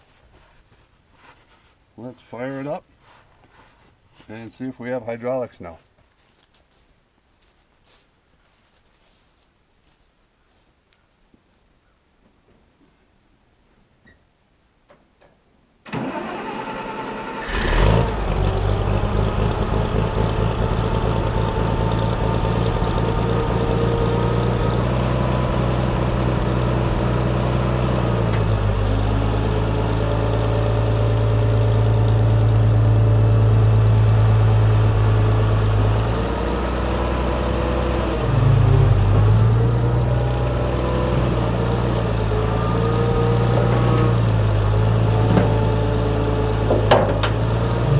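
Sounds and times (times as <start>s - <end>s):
tractor engine cranking and running: 15.9s - 47.9s.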